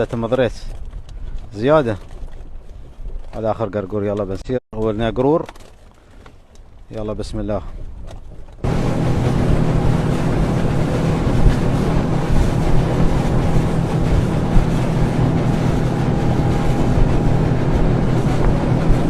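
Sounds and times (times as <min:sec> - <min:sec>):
wind buffeting microphone: 0:07.7 - 0:19.0
boat engine humming: 0:08.6 - 0:19.0
water rushing past hull: 0:08.6 - 0:19.0.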